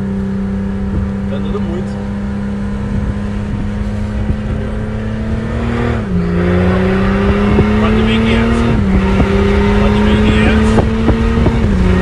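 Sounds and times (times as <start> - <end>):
diesel truck accelerating: 0.0 - 12.0.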